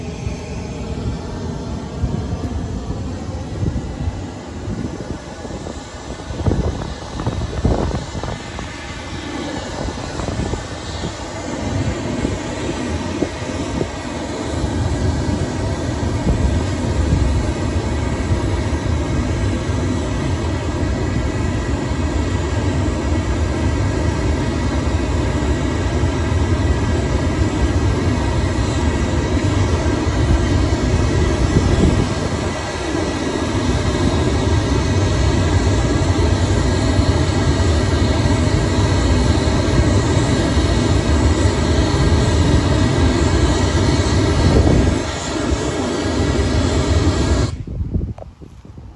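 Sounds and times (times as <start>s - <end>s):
pink noise through a loudspeaker: 1.1s - 23.9s.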